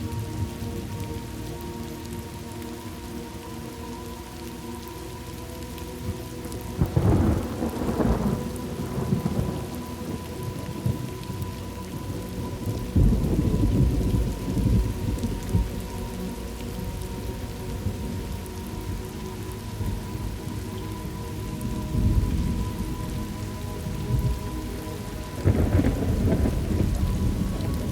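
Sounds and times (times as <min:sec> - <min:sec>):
steady rain: 0:00.0 - 0:27.9
thunder rumbling: 0:06.8 - 0:19.0, 0:19.7 - 0:27.9.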